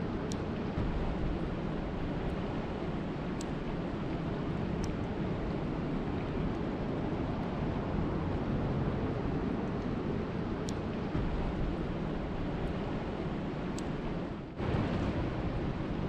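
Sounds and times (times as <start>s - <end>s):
steady rain: 0.0s - 16.0s
faint ticks: 13.7s - 14.0s.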